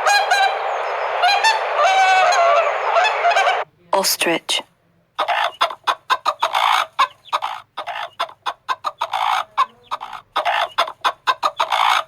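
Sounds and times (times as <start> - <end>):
ostrich raspy calls: 5.2 - 12.0.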